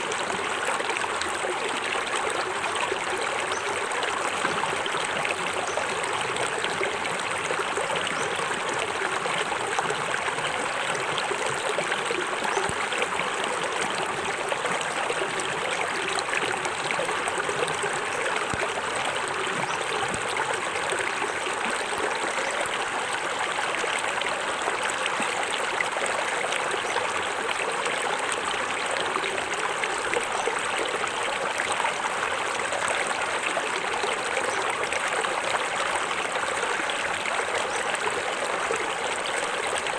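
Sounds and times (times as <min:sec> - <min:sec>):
water falling over rocks: 0:20.0 - 0:20.8.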